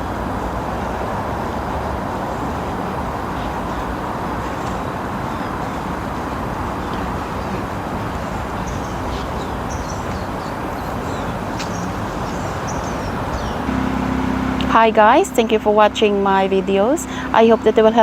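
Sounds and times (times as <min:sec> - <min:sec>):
outdoor background rush: 0:00.0 - 0:18.0
high bird chirps: 0:06.7 - 0:13.7.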